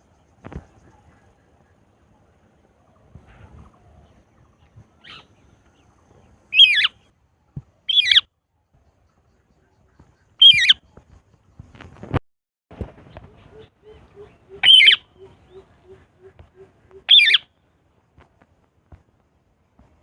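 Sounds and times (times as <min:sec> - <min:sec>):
parakeet squawking: 0:06.6 - 0:06.9, 0:07.9 - 0:08.2, 0:10.4 - 0:10.8, 0:13.5 - 0:17.4.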